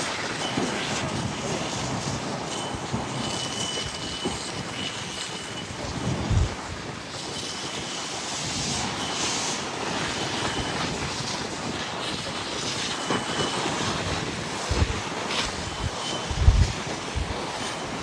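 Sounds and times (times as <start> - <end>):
wind on microphone: 0.2 - 18.0
low buffeting thumps: 15.6 - 17.4.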